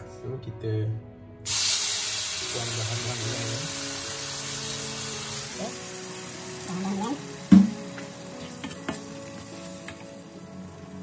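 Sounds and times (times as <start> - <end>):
paste sizzling in a wok: 1.5 - 11.0
sharp knock: 7.5 - 7.9.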